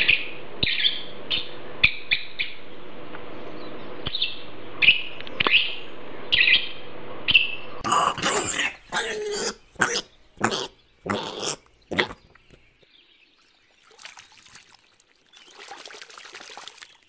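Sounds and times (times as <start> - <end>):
parrot calling: 7.8 - 12.6.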